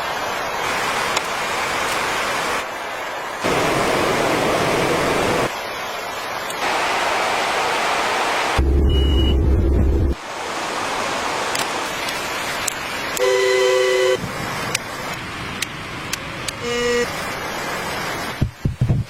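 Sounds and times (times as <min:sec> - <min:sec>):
steady rushing noise: 0:00.0 - 0:13.2, 0:14.2 - 0:19.0
heavy low rumble: 0:08.6 - 0:10.2
horn-like toot: 0:13.2 - 0:14.2, 0:16.6 - 0:17.1.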